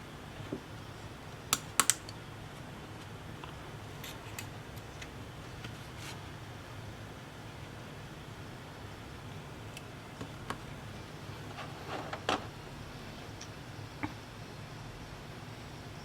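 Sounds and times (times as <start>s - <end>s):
steady low hum: 0.0s - 16.0s
small hard clicks and taps: 1.5s - 2.1s.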